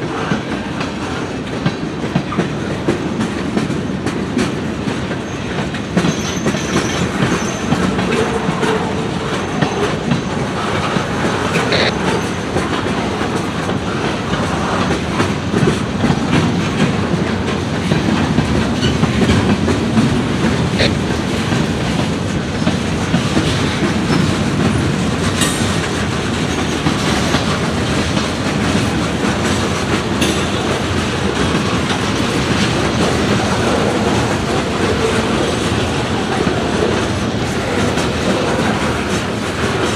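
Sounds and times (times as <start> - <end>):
train wheels clacking on rails: 0.0 - 39.9.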